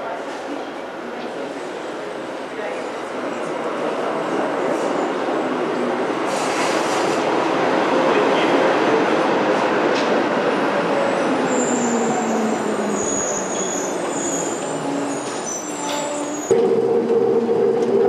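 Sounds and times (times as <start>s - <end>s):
rail vehicle rumble: 0.0s - 18.0s
wheel or brake squeal: 13.0s - 16.5s
steady hum: 16.5s - 18.0s.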